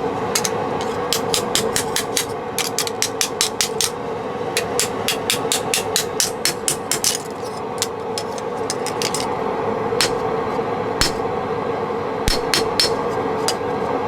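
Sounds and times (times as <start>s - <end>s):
steady hum: 0.0s - 14.0s
hammer tapping on metal: 0.4s - 4.0s, 4.6s - 9.3s, 10.0s - 10.2s, 11.0s - 11.2s, 12.3s - 13.8s.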